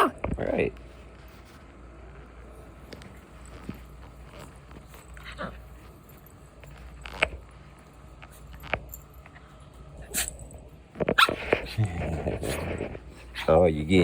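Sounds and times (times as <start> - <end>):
puppy growling and yipping: 11.2 - 13.6.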